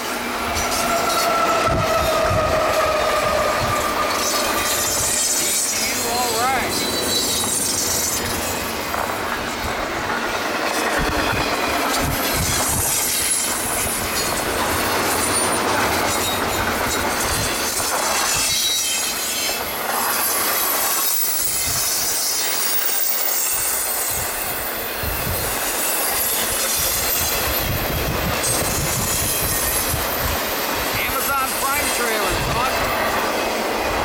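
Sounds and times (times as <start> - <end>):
steel wheels rumbling on rail: 0.0 - 34.0
high-pitched wheel squeal: 0.6 - 8.3.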